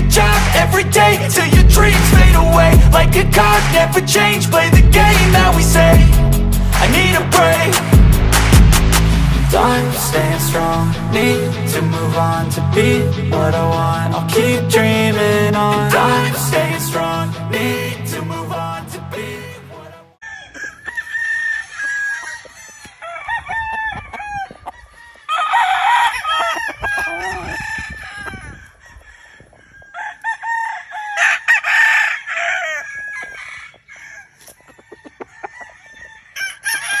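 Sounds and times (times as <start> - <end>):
roosters clucking: 20.2 - 37.0
roosters crowing: 20.2 - 37.0.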